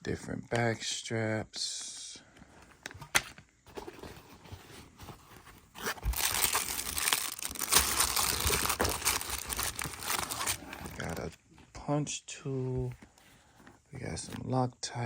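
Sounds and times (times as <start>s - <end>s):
packaging crinkling and tearing: 5.2s - 11.4s.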